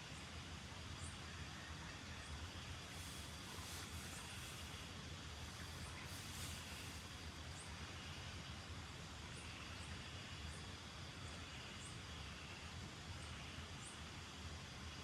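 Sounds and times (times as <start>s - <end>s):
rain hissing: 2.7s - 7.3s.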